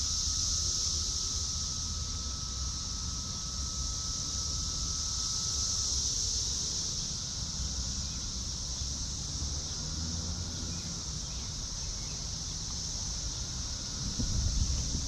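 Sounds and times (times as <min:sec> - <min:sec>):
high-pitched insect chorus: 0:00.0 - 0:15.0
wind rumble on microphone: 0:13.5 - 0:15.0.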